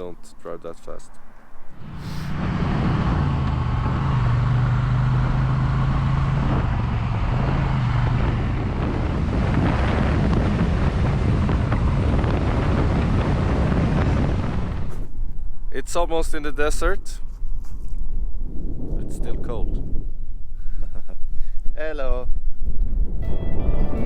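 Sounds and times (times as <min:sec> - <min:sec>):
wind rushing over microphone: 0:00.8 - 0:24.0
motorcycle engine cruising: 0:01.7 - 0:15.2.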